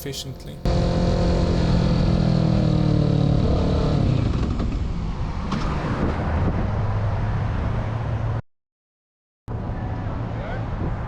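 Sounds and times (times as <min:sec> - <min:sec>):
motorcycle engine slowing: 0:00.0 - 0:05.1
rushing road noise: 0:00.0 - 0:08.4, 0:09.5 - 0:11.0.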